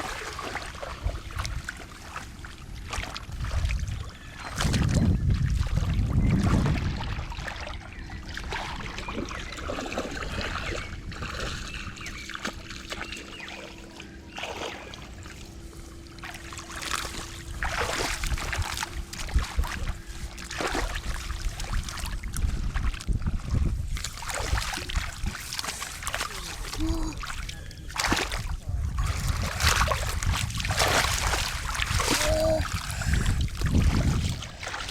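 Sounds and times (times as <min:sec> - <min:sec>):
constant low rumble: 0:00.0 - 0:34.9
water splashing and sloshing: 0:00.0 - 0:34.9.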